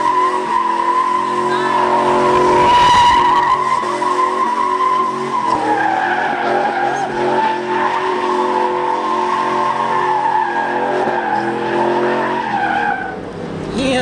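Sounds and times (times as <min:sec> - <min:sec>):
truck tyres squealing: 0:00.0 - 0:14.0
truck engine running: 0:13.0 - 0:14.0.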